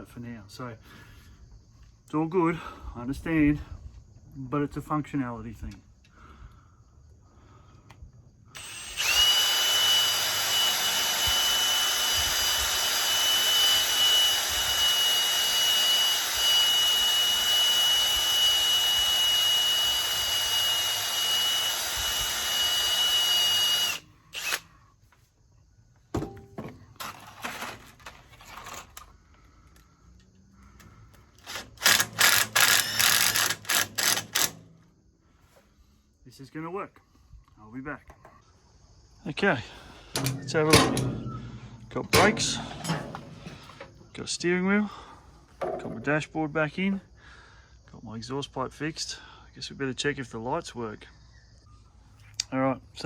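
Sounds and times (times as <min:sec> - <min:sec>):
power tool high whine: 0:08.6 - 0:24.7, 0:31.4 - 0:34.7, 0:40.2 - 0:44.2.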